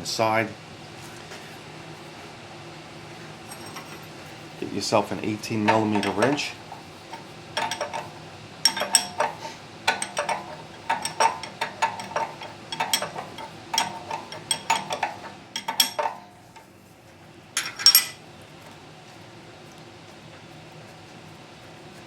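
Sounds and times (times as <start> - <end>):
wrench clinking on metal: 3.5 - 4.1, 5.7 - 16.7, 17.6 - 18.2
metallic rattle: 5.6 - 16.7, 17.6 - 18.2.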